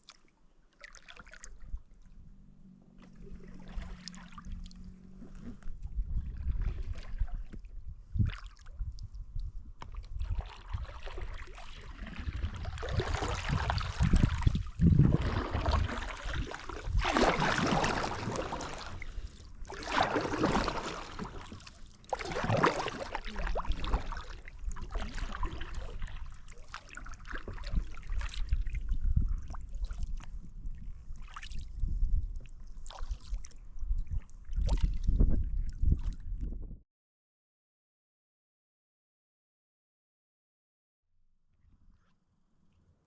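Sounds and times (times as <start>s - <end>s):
paddle strokes splashing: 0.0s - 5.8s, 9.8s - 30.4s, 32.8s - 33.6s
low rumble: 1.7s - 8.1s, 12.0s - 19.8s.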